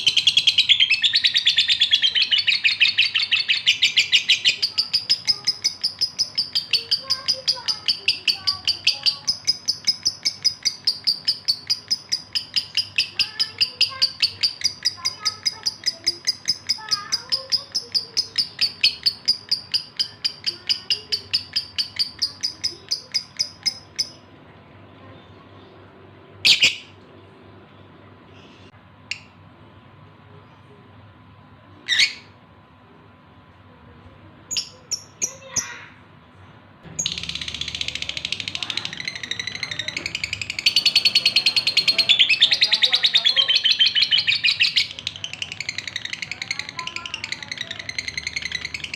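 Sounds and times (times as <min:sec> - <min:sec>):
bird chirping rapidly: 0:00.0 - 0:24.3, 0:26.4 - 0:27.0, 0:36.9 - 0:48.9
lovebird high-pitched calls: 0:00.0 - 0:24.3, 0:26.4 - 0:27.0, 0:31.8 - 0:32.4, 0:34.5 - 0:35.9, 0:36.9 - 0:48.9.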